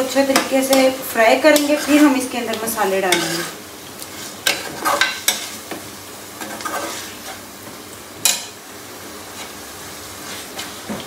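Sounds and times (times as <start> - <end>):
chicken sizzling in pot: 0.0 - 11.0
metal spoon scraping pot: 3.1 - 3.6.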